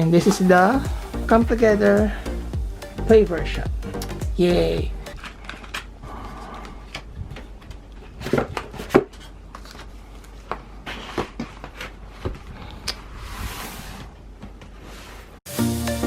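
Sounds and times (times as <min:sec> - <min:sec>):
packaging rustling: 0:05.1 - 0:06.0.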